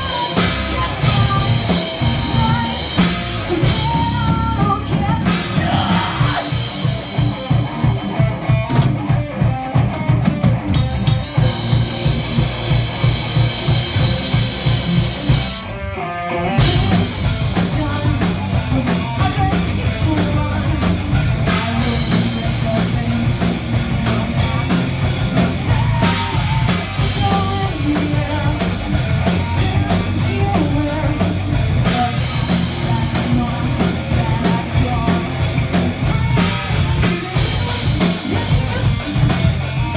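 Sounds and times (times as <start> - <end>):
rapid drum strokes: 0.0 - 15.7, 16.6 - 39.9
metal band playing live: 0.0 - 39.9.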